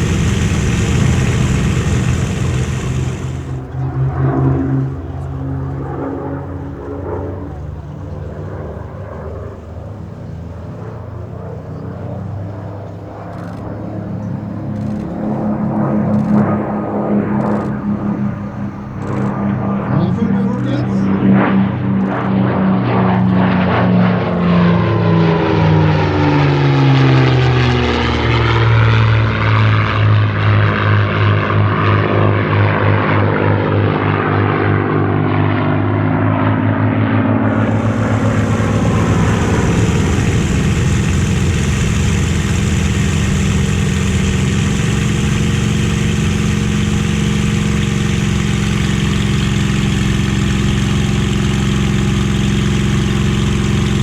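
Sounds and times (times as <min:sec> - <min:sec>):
steady engine drone with hiss: 0:00.0 - 0:22.4, 0:37.4 - 0:54.0
piston aircraft engine passing by: 0:00.0 - 0:54.0.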